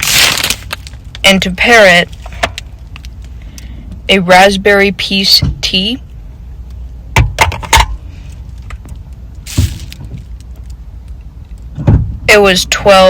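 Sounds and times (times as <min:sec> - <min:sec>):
low steady hum: 0:00.0 - 0:13.0
thud: 0:09.5 - 0:10.2.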